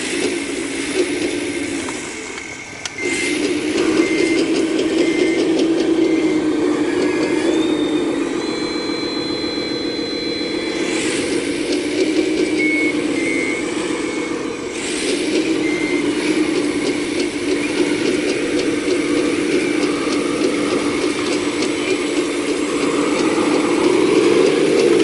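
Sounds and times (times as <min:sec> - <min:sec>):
excavator engine drone: 0:00.0 - 0:25.0
high hydraulic whine: 0:00.0 - 0:25.0
rapid metallic clatter: 0:14.7 - 0:25.0.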